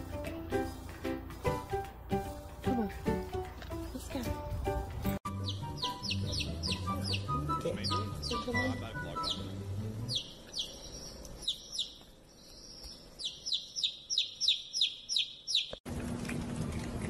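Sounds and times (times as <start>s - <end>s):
baby chick peeping: 5.3s - 15.8s.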